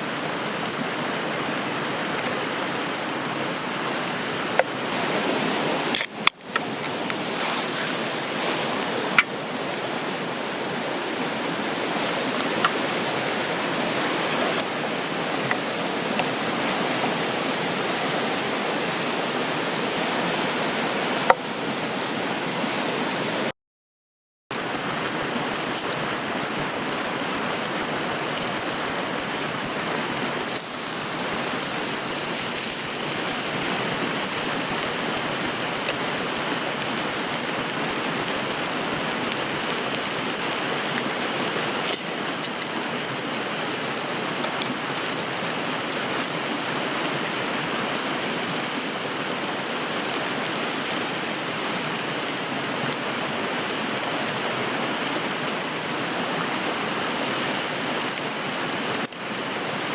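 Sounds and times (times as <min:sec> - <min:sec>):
river rushing: 0:00.0 - 0:23.5, 0:24.5 - 0:59.9.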